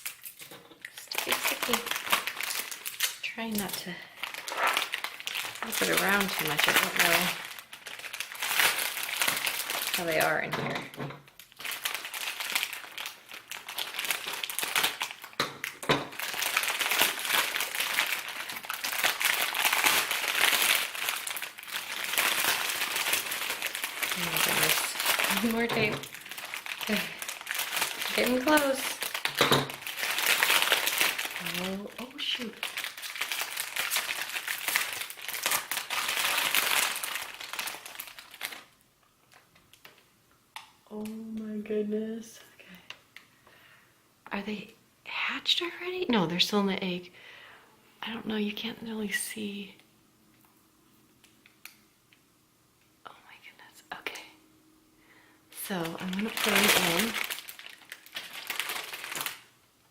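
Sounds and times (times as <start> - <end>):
packing tape pulled off: 0.0 - 10.0
plastic packaging crinkling: 0.0 - 40.1, 55.6 - 59.6.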